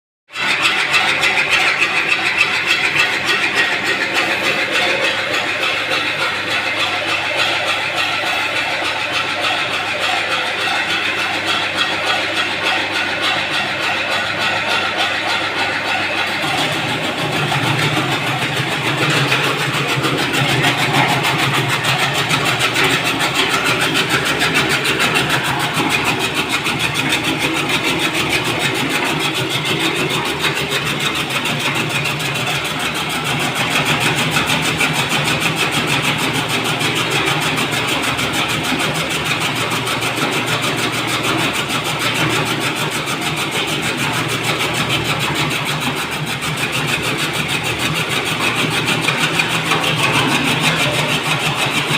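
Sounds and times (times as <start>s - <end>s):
chaff cutter running: 0.3s - 51.9s.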